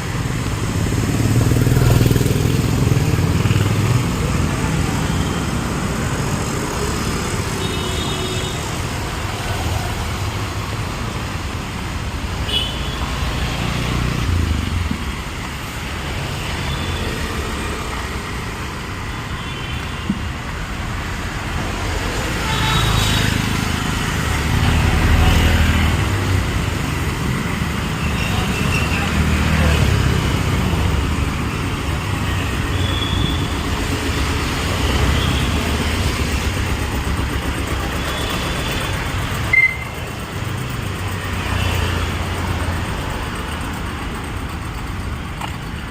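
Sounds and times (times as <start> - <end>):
passing cars and motorbikes: 0.0 - 45.9
vehicle horn toots: 39.5 - 39.9.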